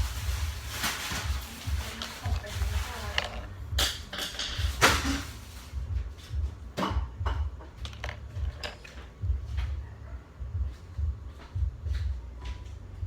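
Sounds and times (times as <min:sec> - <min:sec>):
small objects clicking and knocking: 0:00.0 - 0:05.4, 0:07.6 - 0:09.2
low rumble: 0:00.0 - 0:13.0.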